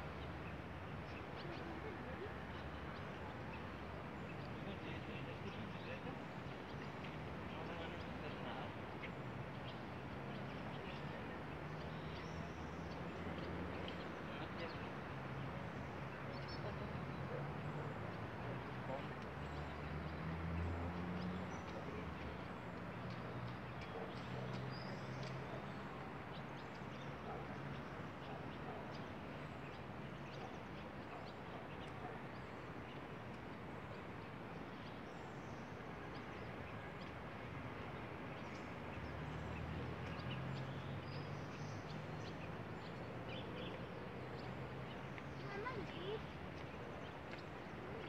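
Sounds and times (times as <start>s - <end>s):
small birds chirping: 0.0s - 48.0s.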